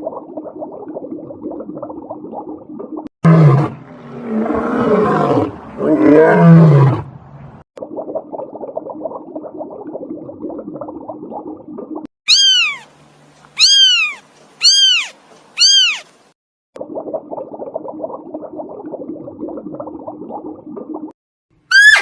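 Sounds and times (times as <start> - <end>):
cat meowing: 12.3 - 12.9, 13.6 - 16.1.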